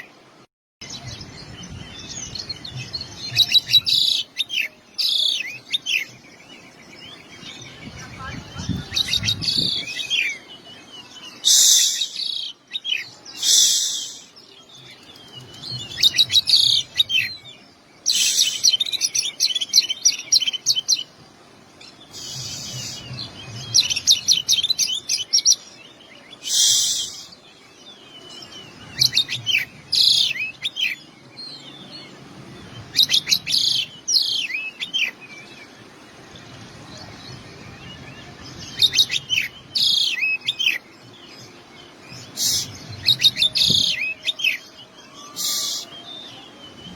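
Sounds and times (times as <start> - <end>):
bird singing trills and whistles: 0.8 - 21.1, 22.1 - 35.8, 36.4 - 46.9.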